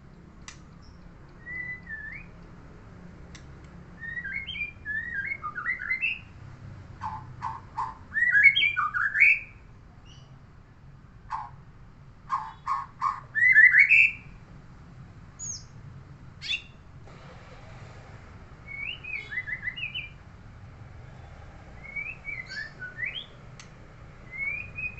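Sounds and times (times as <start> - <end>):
songbird whistling and clicking: 0.1 - 2.6, 3.3 - 6.2, 7.0 - 9.4, 18.7 - 20.2, 21.8 - 24.9.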